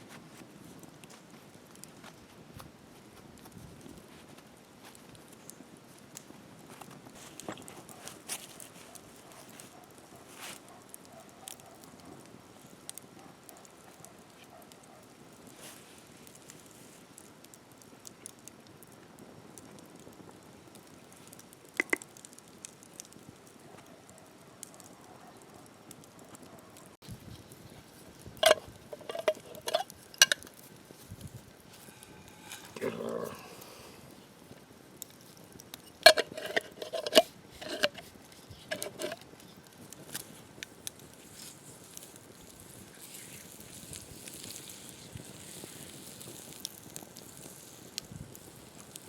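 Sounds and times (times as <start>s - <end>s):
campfire crackling: 0.0s - 49.0s
metal utensils clinking on cookware: 28.4s - 30.4s, 35.9s - 38.0s, 38.6s - 39.2s.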